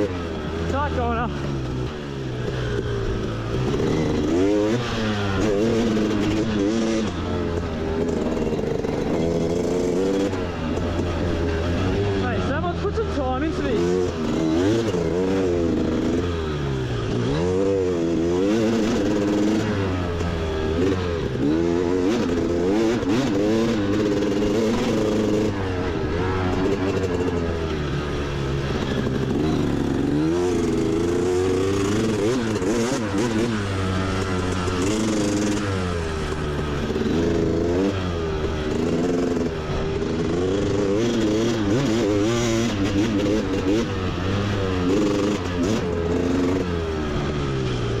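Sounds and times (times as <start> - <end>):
motorbike engine revving: 0.0 - 48.0.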